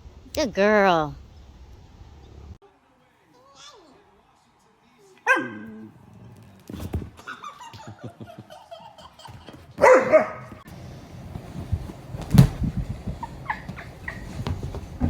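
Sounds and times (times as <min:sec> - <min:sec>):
dog barking: 0:05.3 - 0:05.8, 0:09.8 - 0:10.6.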